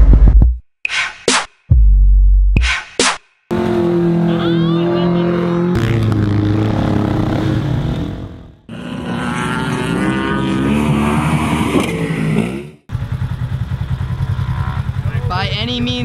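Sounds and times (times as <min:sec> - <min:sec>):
car engine running hard: 0:03.5 - 0:10.2
utility vehicle engine revving: 0:03.5 - 0:15.6.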